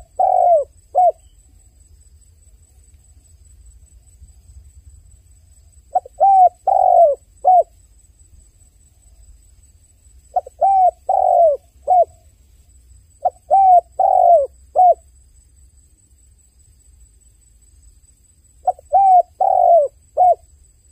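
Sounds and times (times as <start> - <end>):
dove cooing: 0.0 - 1.3, 5.9 - 7.7, 10.3 - 12.2, 13.2 - 15.0, 18.6 - 20.4.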